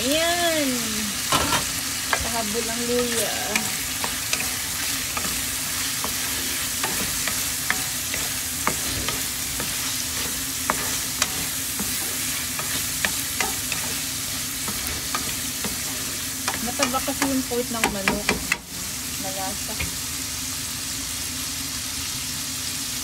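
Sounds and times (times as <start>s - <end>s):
chicken sizzling in a pan: 0.0s - 23.0s
sharp pops of frying fat: 14.6s - 18.9s.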